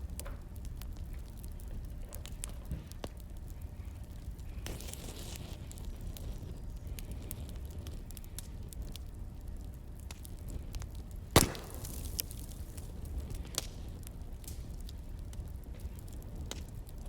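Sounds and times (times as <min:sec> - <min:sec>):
fire crackling: 0:00.0 - 0:17.0
wood fire burning: 0:00.0 - 0:17.0
loud fire pop: 0:11.3 - 0:13.8.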